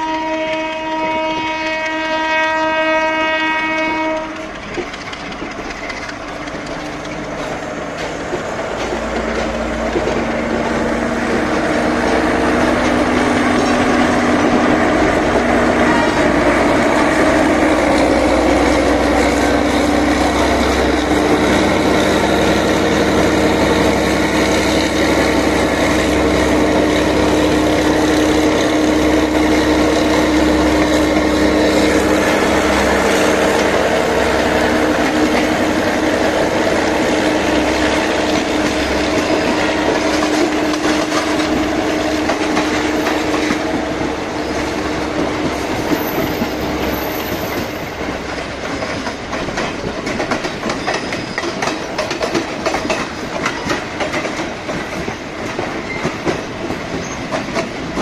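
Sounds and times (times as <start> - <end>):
train horn chord: 0.0 - 4.5, 14.1 - 22.2, 23.1 - 45.2
diesel train passing: 0.0 - 58.0.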